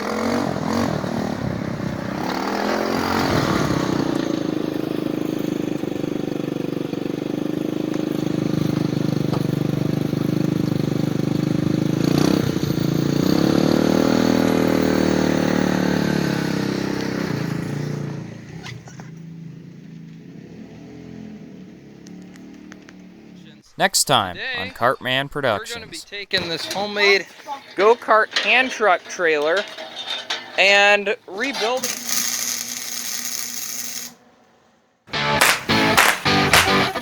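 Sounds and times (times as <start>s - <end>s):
buggy engine running and revving: 0.0s - 23.6s
sharp knock: 35.3s - 37.0s.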